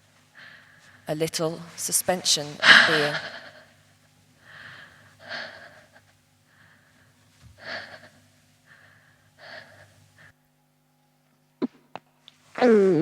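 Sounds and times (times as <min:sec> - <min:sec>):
person gasping breaths: 0:04.4 - 0:10.4.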